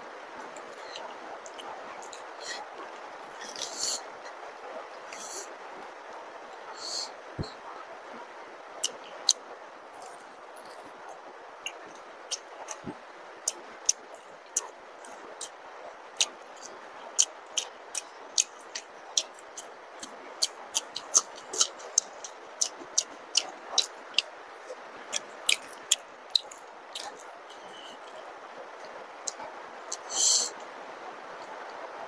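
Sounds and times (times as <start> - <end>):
wet chewing mouth smacks: 17.2 - 24.3.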